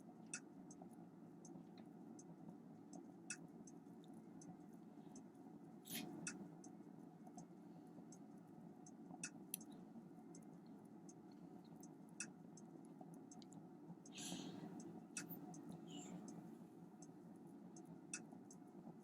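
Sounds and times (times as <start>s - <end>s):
faint sharp clicks: 2.9s - 7.5s, 8.1s - 16.4s.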